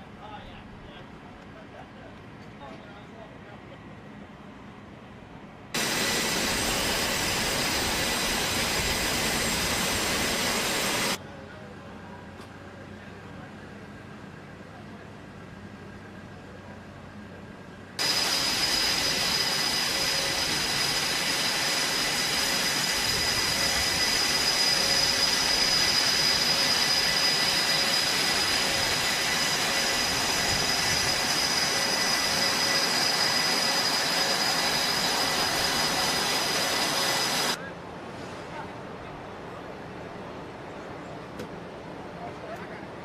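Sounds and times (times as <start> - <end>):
jet engine whining: 5.8 - 11.2, 18.0 - 37.6.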